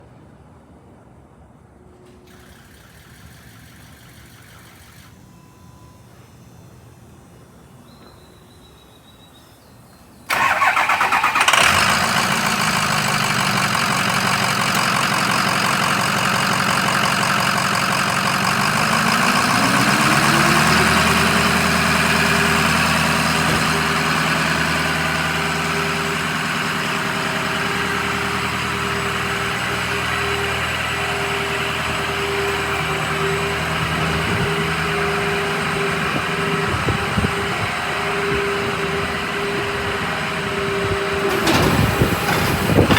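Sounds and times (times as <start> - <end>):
diesel engine starting and idling: 2.0 - 42.9
rising whine: 18.4 - 40.0.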